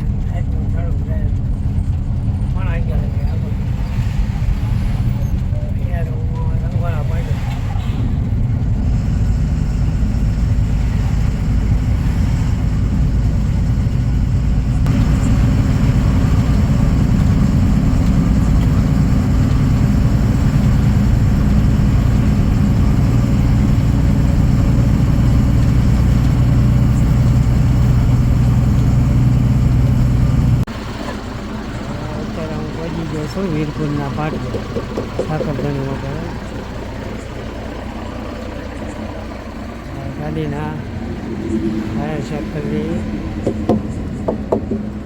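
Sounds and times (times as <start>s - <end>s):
truck diesel engine droning: 0.0s - 45.0s.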